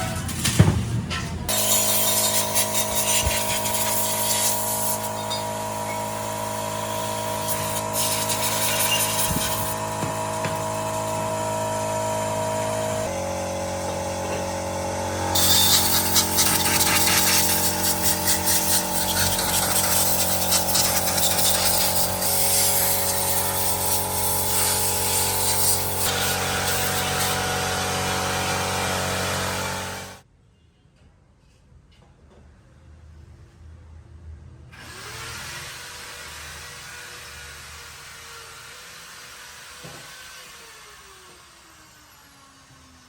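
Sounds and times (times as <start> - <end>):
high scraping grinding noise: 1.4 - 30.2
electric power tool running: 1.5 - 30.2.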